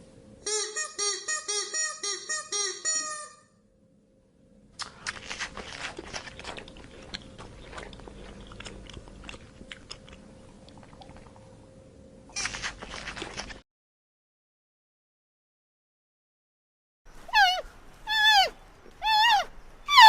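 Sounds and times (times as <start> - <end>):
faint steady hum: 0.0 - 13.6
animal chewing crunchy food: 4.8 - 11.4, 12.4 - 13.6.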